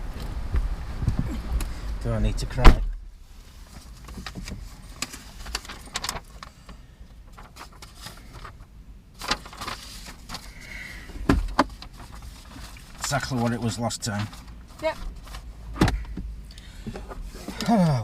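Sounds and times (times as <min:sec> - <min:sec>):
low steady rumble: 0:00.0 - 0:18.0
clicks and rattles in car cabin: 0:03.7 - 0:10.4, 0:11.2 - 0:17.8.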